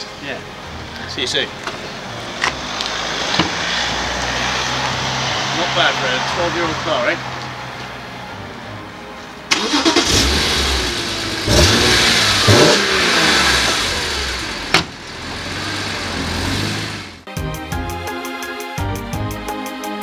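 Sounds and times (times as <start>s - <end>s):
music: 0.0s - 2.9s, 6.9s - 10.1s, 17.2s - 20.0s
car engine revving: 9.5s - 17.2s.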